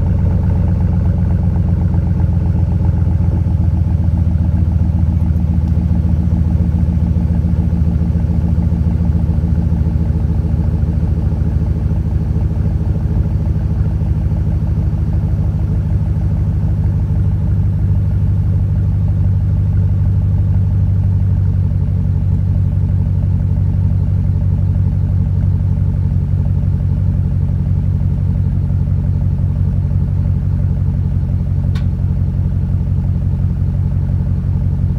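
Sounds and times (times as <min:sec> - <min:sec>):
engine exhaust idling: 0:00.0 - 0:34.9
faint click: 0:31.7 - 0:31.9.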